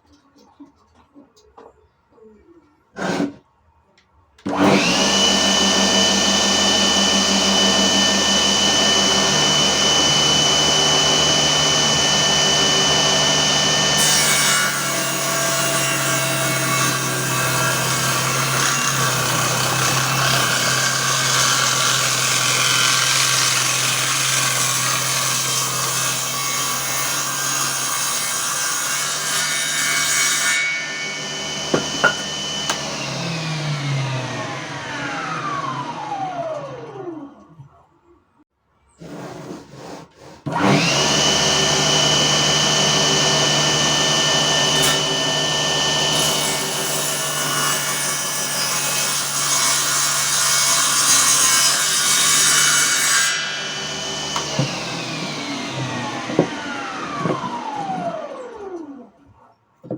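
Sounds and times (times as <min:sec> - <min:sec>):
saw cutting workpiece: 0:03.0 - 0:03.4, 0:04.4 - 0:37.2, 0:39.0 - 0:59.1
circular saw blade whine: 0:30.7 - 0:37.4
sharp knocks: 0:31.7 - 0:32.8.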